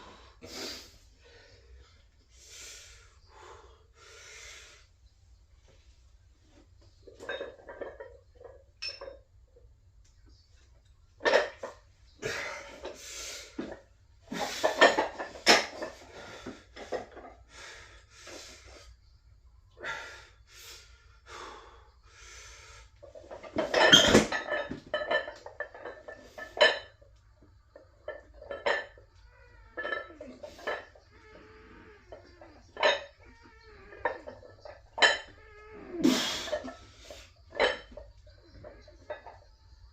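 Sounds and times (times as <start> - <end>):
metallic clanks and clinks: 8.8 - 9.3, 23.5 - 27.0.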